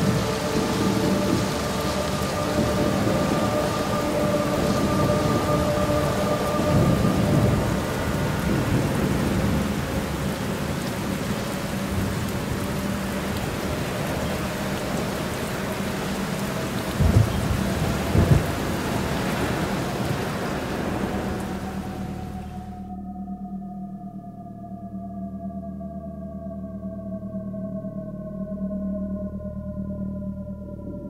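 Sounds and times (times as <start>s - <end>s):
low thunder rumbling: 0.0s - 22.8s
steady rain: 0.0s - 22.9s.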